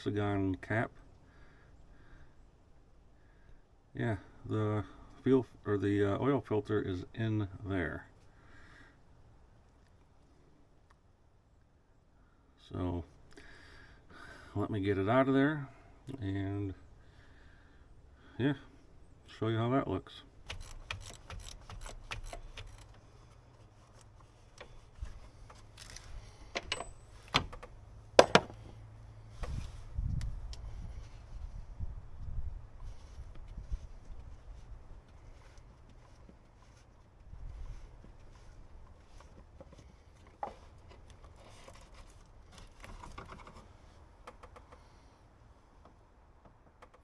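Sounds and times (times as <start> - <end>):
metallic clicks of hand tool: 20.5 - 23.0
sharp knocks: 27.4 - 28.7.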